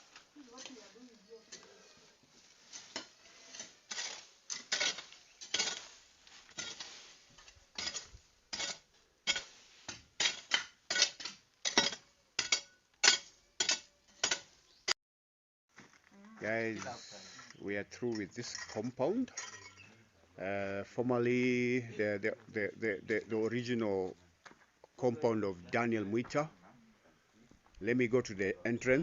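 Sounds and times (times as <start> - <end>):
metal hand tool clinking on ground: 2.7 - 5.9, 18.1 - 19.9.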